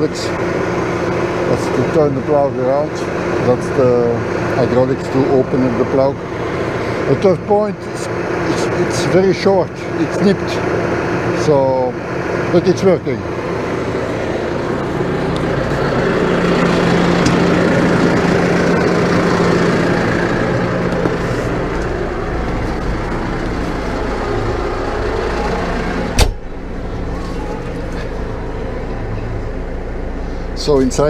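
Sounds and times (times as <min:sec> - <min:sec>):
tractor diesel engine idling: 0:00.0 - 0:31.0
sharp bang: 0:26.2 - 0:26.7.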